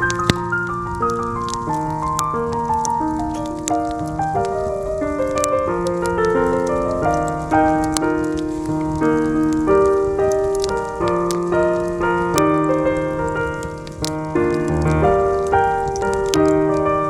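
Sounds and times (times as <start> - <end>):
campfire crackling: 0.0 - 17.0
soft jazz piano: 0.0 - 17.0.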